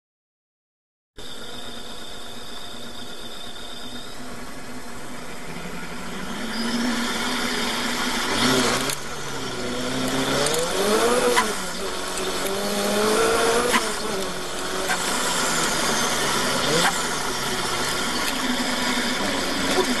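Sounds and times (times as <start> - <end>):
race car engine revving: 1.8 - 20.0.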